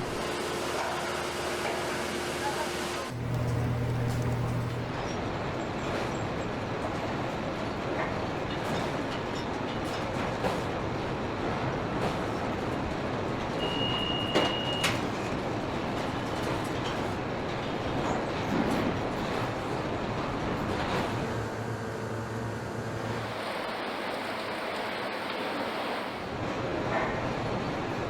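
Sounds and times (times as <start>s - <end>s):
industrial machinery noise: 0.0s - 28.0s
short high beep: 13.6s - 14.9s.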